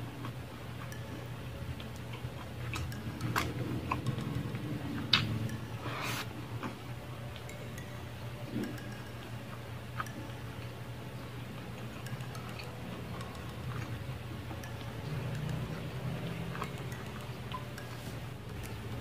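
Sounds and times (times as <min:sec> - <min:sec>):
wet chewing and mouth clicks: 0:00.0 - 0:07.5, 0:11.6 - 0:19.0
steady low hum: 0:00.0 - 0:19.0.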